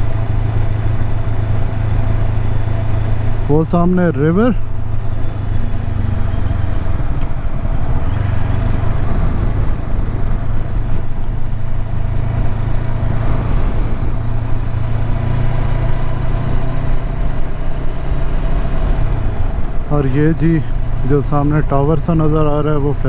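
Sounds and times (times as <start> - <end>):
motorcycle engine droning: 0.0 - 23.0
wind rushing over microphone: 4.6 - 22.3.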